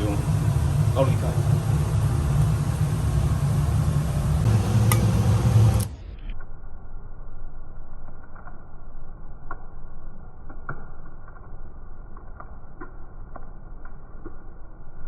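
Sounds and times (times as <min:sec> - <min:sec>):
stir-frying noise: 0:00.0 - 0:05.9.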